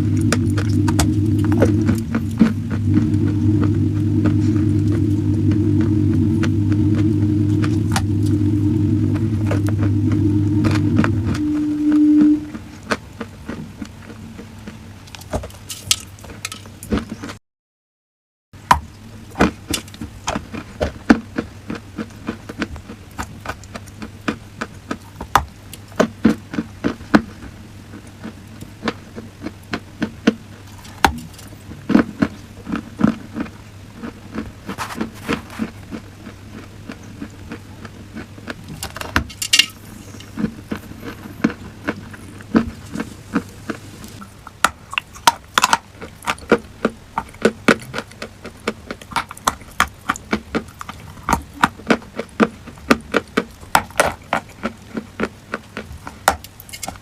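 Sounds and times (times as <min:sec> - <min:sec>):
faint low hum: 0:00.0 - 0:17.4, 0:18.6 - 0:57.0.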